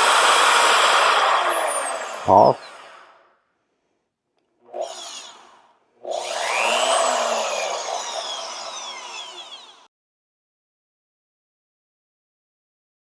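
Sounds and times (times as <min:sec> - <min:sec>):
drill motor whining: 0:00.0 - 0:03.2, 0:04.7 - 0:09.9.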